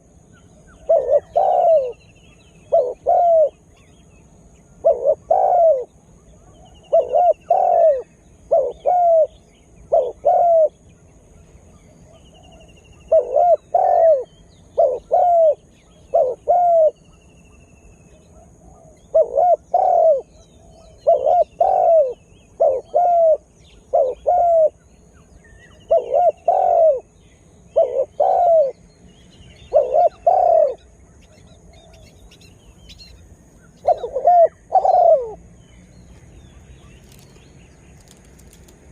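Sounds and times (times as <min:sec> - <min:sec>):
dove cooing: 0:00.8 - 0:03.8, 0:04.8 - 0:10.8, 0:12.1 - 0:17.1, 0:18.3 - 0:24.8, 0:25.6 - 0:28.8, 0:29.6 - 0:32.2, 0:33.0 - 0:35.4.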